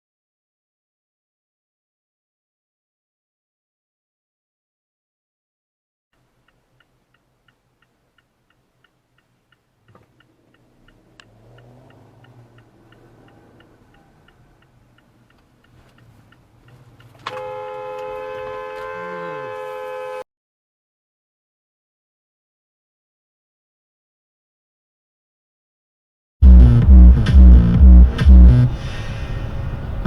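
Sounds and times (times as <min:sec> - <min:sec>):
engine and road noise: 0:06.2 - 0:20.2, 0:26.4 - 0:30.0
car turn signal clicking: 0:06.4 - 0:17.5
car horn blast: 0:17.2 - 0:20.3.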